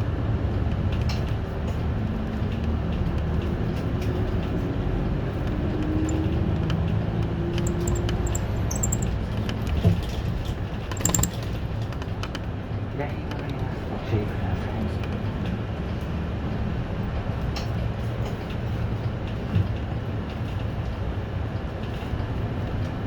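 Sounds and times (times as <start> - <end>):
bus engine and road rumble: 0.0 - 11.5, 12.9 - 23.0
short rattles or knocks: 7.6 - 9.1, 10.9 - 11.4.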